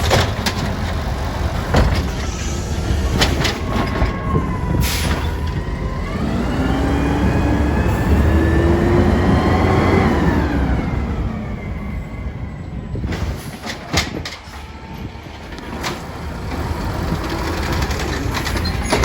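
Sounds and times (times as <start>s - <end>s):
garbage truck engine revving: 0.0s - 14.2s, 15.4s - 19.0s
metal clanks: 17.3s - 19.0s.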